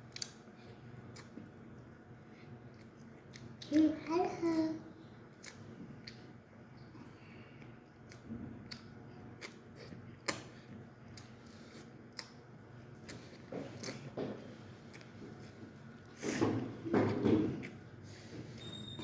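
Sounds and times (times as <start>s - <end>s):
person chewing crisp food: 0.0s - 1.9s, 5.3s - 6.4s, 7.6s - 14.2s, 14.8s - 16.4s.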